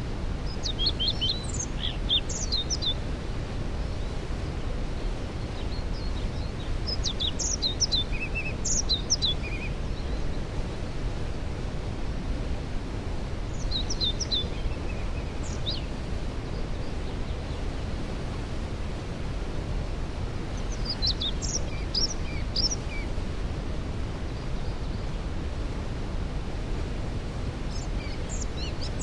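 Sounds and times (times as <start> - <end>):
songbird chirping and whistling: 13.6 - 15.8.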